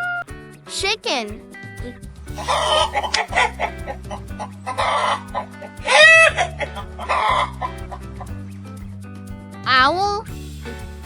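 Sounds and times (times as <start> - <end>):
cheerful background music: 0.0 - 11.0
hen squawking: 2.4 - 8.0
hen clucking: 2.4 - 8.4.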